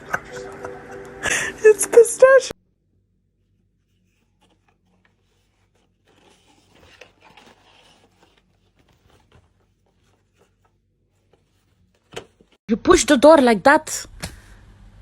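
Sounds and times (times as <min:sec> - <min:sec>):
faint rustles and scrapes: 0:03.4 - 0:12.6.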